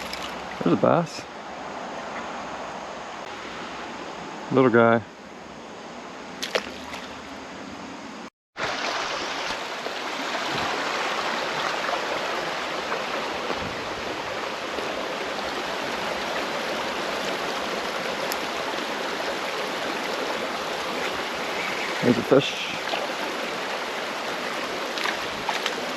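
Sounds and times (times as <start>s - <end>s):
creek water rushing over rocks: 8.6s - 25.9s.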